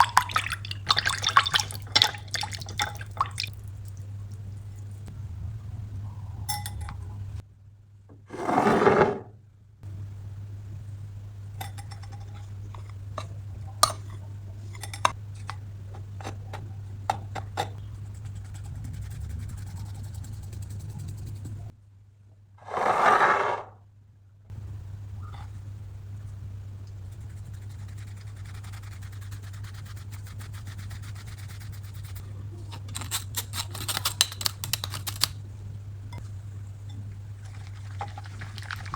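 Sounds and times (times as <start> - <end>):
steady low hum: 0.0 - 8.3, 9.2 - 22.6, 23.9 - 38.9
utensil scraping against mug: 31.9 - 35.3.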